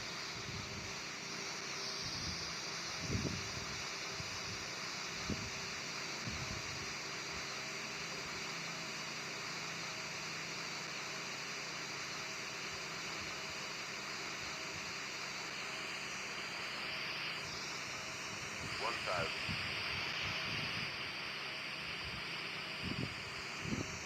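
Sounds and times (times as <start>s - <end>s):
faint high whine: 0.0s - 24.0s
jet engine roar: 18.6s - 21.0s.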